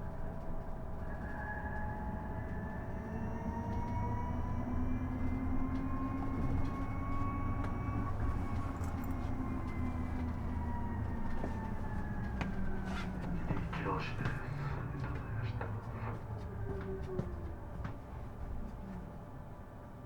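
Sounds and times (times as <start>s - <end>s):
electric bus motor whine: 0.0s - 20.0s
road and tyre rumble: 4.2s - 20.0s.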